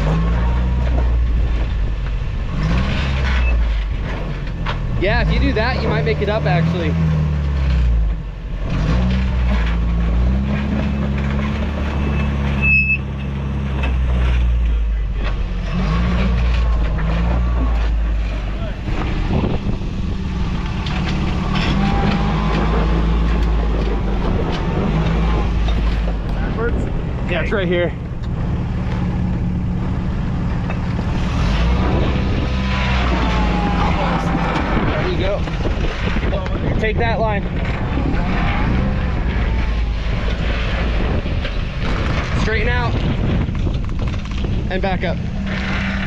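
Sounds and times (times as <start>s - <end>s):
truck engine at low revs: 0.0s - 46.0s
high squeak: 12.0s - 13.3s
wind on microphone: 18.8s - 20.8s, 34.2s - 45.4s.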